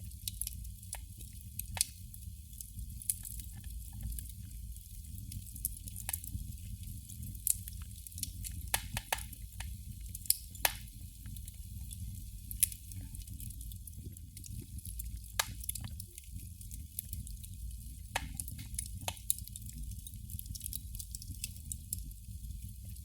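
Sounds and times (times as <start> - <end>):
candle flame crackling: 0.0 - 23.0.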